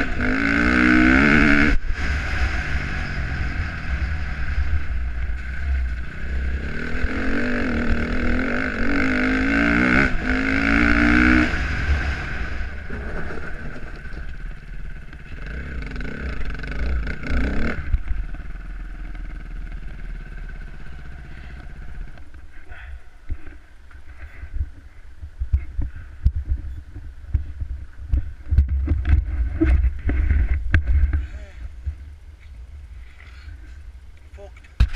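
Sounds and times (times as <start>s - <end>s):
dirt bike engine revving: 0.0s - 22.2s
wind on microphone: 24.2s - 32.1s.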